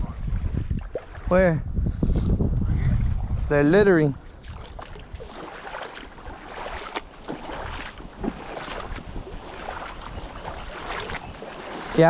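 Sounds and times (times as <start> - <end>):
boots splashing through water: 4.2 - 12.0.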